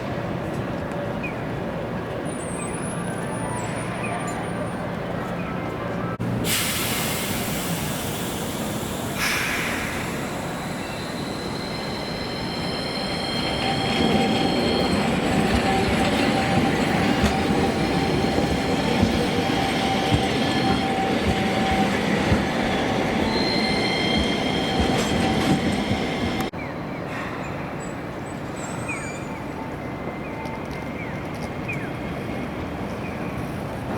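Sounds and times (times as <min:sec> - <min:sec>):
streetcar wheels squealing: 0:02.1 - 0:26.5.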